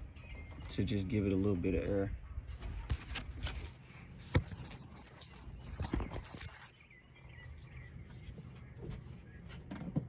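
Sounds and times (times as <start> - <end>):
faint bird chirps: 0.0 - 1.2, 5.0 - 9.8.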